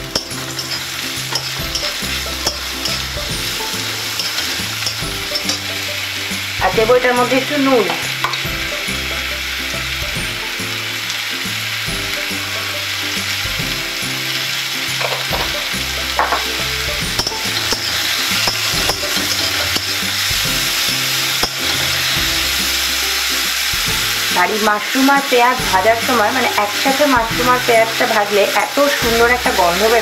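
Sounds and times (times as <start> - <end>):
metal spatula scraping pan: 0.0 - 6.5, 14.9 - 23.4
vegetables sizzling in hot oil: 0.0 - 30.0.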